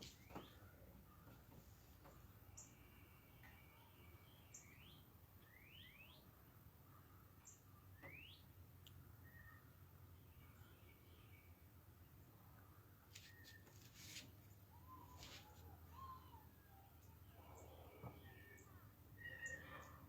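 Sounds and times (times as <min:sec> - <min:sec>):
faint bird chirps: 0:00.0 - 0:01.4, 0:02.0 - 0:20.0
soft bird trill: 0:03.7 - 0:06.3, 0:13.2 - 0:14.0, 0:14.7 - 0:20.0.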